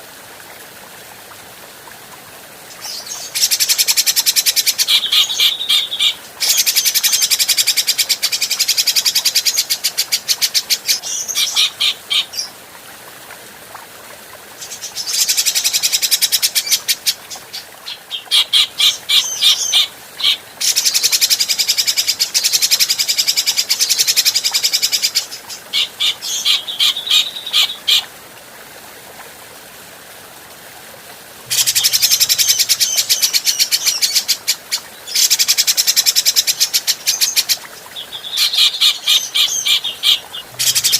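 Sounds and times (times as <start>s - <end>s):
bird harsh chattering song: 38.3s - 40.9s.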